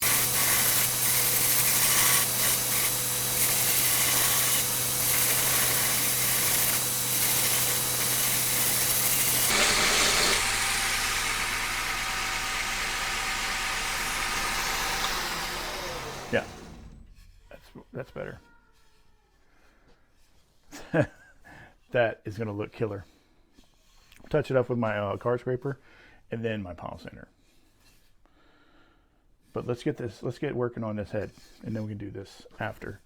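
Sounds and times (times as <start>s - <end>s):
electric sander running: 0.0s - 17.1s.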